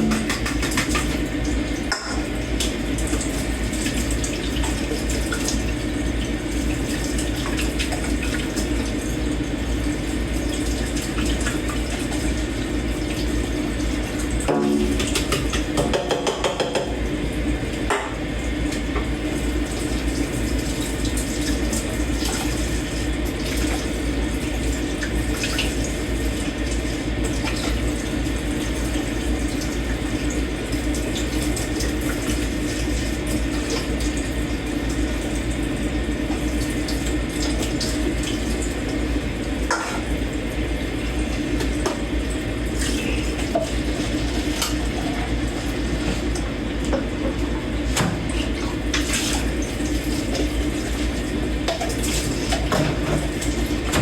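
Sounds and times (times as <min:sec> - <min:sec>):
tap running into sink: 0:00.0 - 0:01.2, 0:14.5 - 0:17.0, 0:46.0 - 0:49.4, 0:51.7 - 0:54.0.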